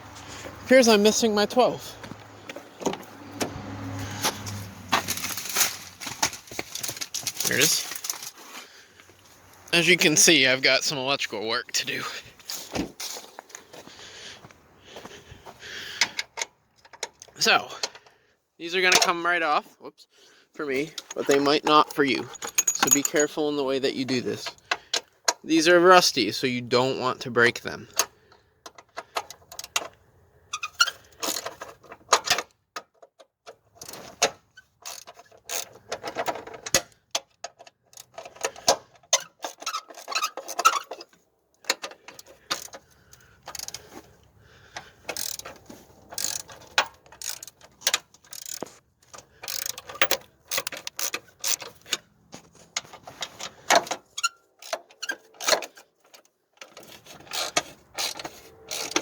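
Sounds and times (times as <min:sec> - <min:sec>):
socket ratchet clicking: 0:45.1 - 0:48.7, 0:49.4 - 0:51.6, 0:57.3 - 0:59.0.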